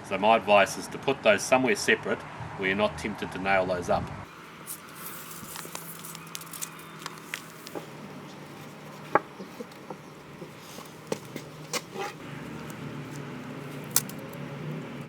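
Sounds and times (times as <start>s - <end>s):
wooden pieces knocking: 7.0s - 14.4s.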